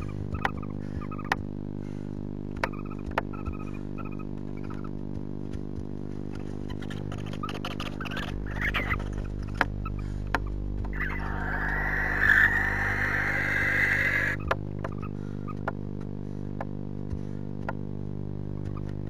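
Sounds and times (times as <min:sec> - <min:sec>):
steady electrical hum: 0:00.0 - 0:19.0
barn owl hissing call: 0:11.0 - 0:14.4.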